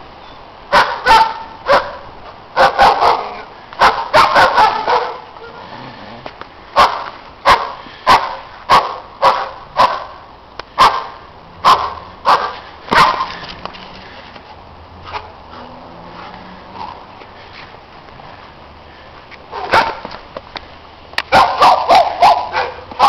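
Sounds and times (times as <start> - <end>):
dog barking: 0.7 - 2.0, 2.6 - 5.6, 6.8 - 10.2, 10.8 - 13.4, 19.5 - 20.0, 21.3 - 23.0.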